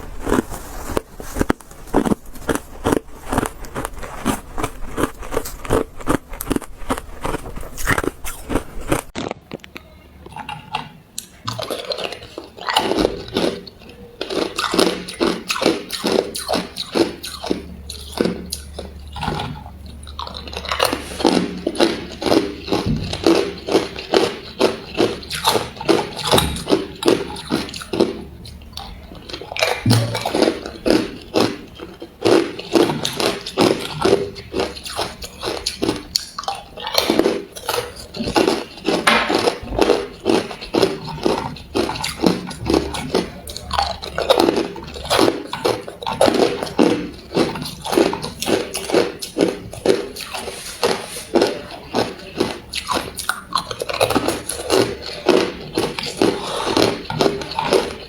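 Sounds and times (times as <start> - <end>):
person crunching ice: 0.0 - 9.7.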